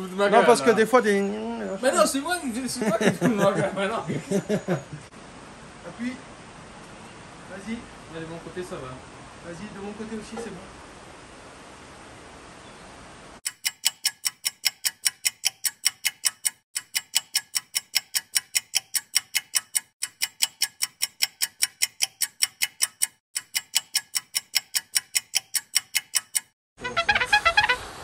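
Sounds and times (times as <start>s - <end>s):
faint background hiss: 0.2s - 13.4s
clock-like ticking: 13.4s - 26.6s.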